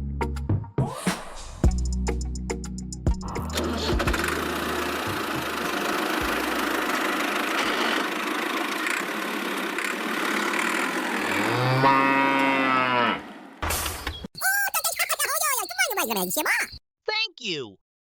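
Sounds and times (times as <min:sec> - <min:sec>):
engine running: 0:03.2 - 0:11.8.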